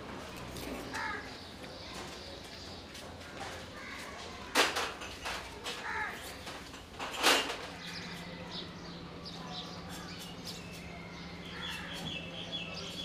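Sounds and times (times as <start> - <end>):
small birds chirping: 7.7 - 13.0.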